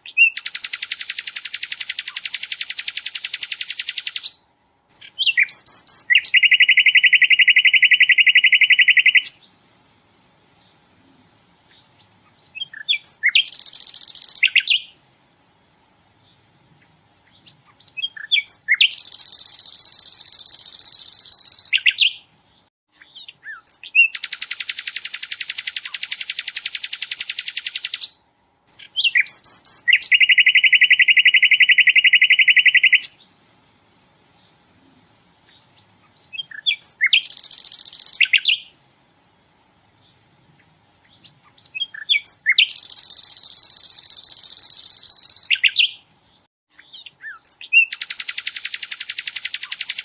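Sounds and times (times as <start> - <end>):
bird chips: 0.0 - 4.4, 12.0 - 14.9, 17.4 - 22.2, 23.1 - 28.2, 35.8 - 38.6, 41.2 - 46.0, 46.9 - 50.0
bird singing fast trills: 0.0 - 9.5, 11.7 - 15.0, 17.3 - 22.3, 23.0 - 33.3, 35.5 - 38.8, 41.1 - 46.1, 46.7 - 50.0.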